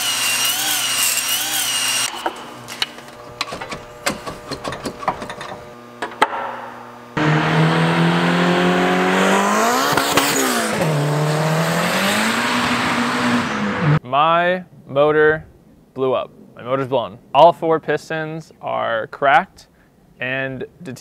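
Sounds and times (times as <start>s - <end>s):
cordless drill whining: 0.0s - 2.9s
car engine starting and accelerating: 7.2s - 14.0s.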